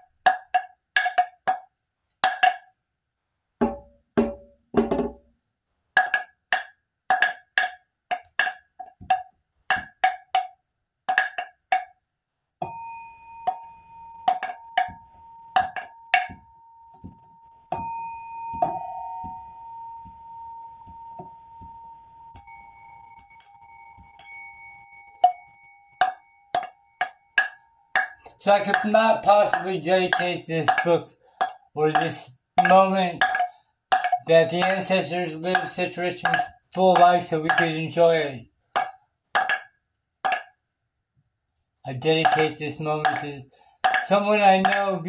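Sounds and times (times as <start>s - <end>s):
dry wooden percussion knocks: 0.0s - 2.8s, 3.6s - 5.3s, 6.0s - 12.0s, 13.4s - 24.5s, 25.2s - 40.6s, 42.0s - 45.0s
lower bell tone: 12.6s - 28.6s
struck bell ringing: 12.6s - 39.0s, 42.0s - 45.0s.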